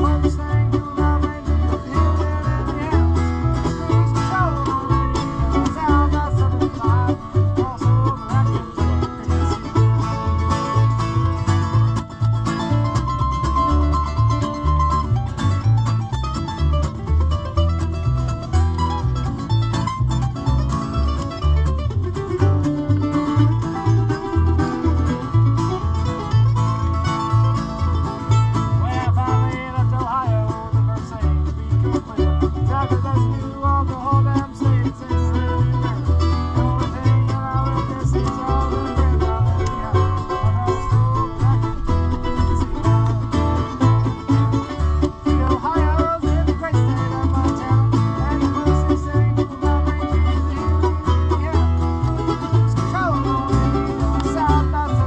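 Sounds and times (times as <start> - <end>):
alternating bass line: 0.0 - 55.0
banjo picking: 0.0 - 55.0
guitar picking: 0.0 - 55.0.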